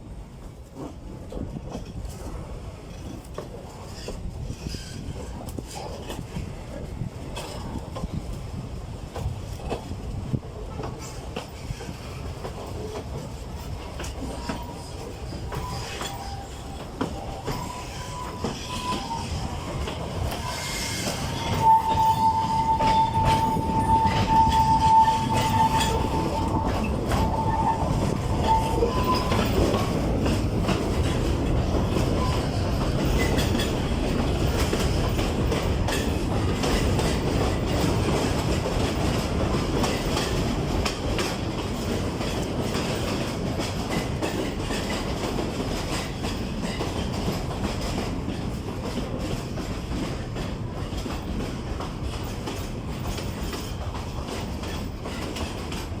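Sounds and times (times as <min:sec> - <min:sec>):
train wheels on rails: 0:00.0 - 0:56.0
high wheel squeal: 0:14.3 - 0:30.0.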